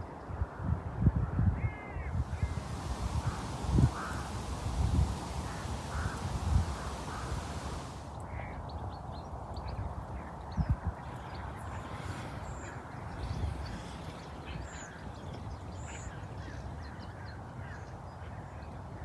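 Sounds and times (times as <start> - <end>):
birds calling: 2.2 - 8.1
low bumps: 2.2 - 8.1
outdoor air rumble and hiss: 2.2 - 8.1.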